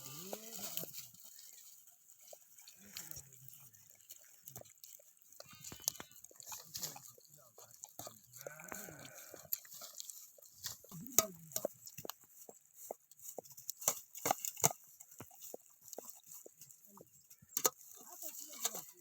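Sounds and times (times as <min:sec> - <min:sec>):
sheep bleating: 0:00.0 - 0:00.9, 0:02.7 - 0:03.4, 0:05.4 - 0:06.4, 0:08.2 - 0:09.6.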